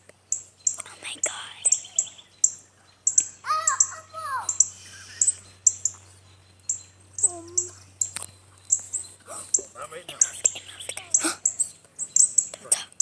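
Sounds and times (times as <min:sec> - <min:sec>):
songbirds chirping: 0:00.0 - 0:13.0
soft child's voice: 0:03.4 - 0:04.6, 0:07.2 - 0:07.8.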